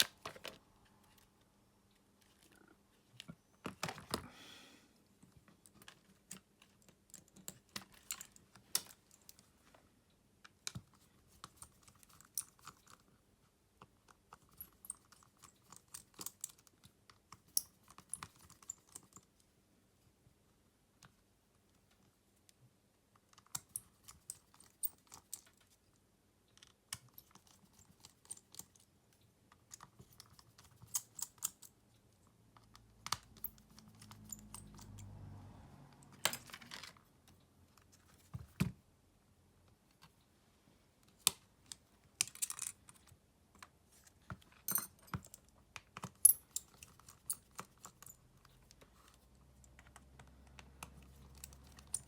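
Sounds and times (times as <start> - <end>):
tools clicking and tapping: 32.6 - 35.1, 44.3 - 52.0.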